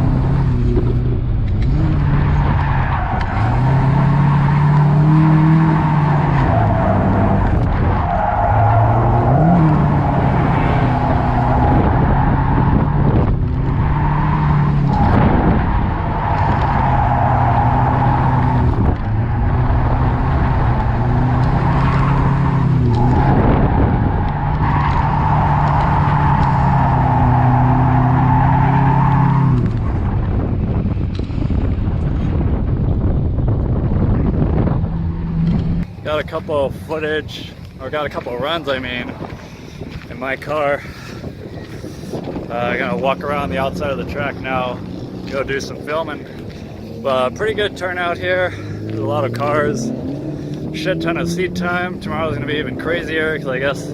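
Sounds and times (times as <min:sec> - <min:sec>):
car engine at high revs: 0:00.0 - 0:36.1, 0:41.5 - 0:53.9
tyres squealing: 0:24.0 - 0:29.6.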